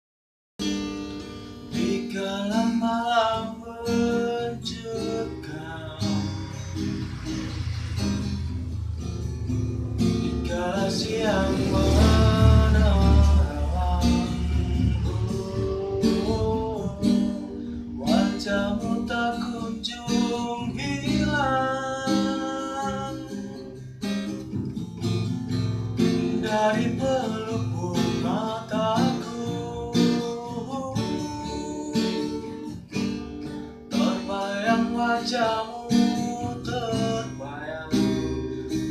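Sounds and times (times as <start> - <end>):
acoustic guitar strumming: 0.6 - 38.9
person singing: 10.3 - 23.7.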